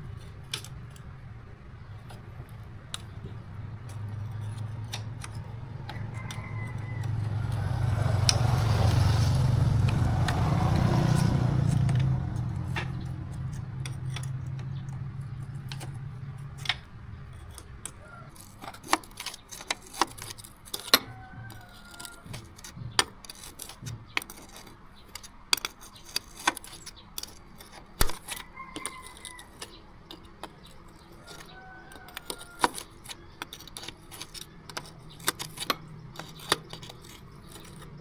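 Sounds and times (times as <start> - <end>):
low engine hum: 0.0 - 18.3
metallic clicks of tools: 0.1 - 8.9, 9.8 - 38.0.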